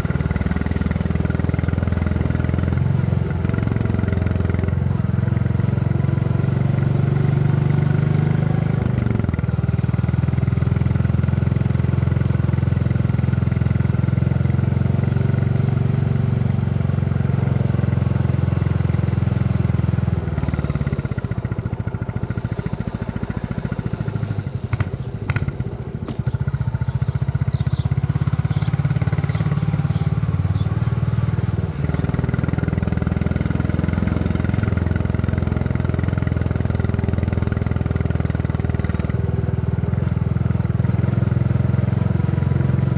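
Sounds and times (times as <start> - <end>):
motorcycle engine thumping: 20.0 - 30.7.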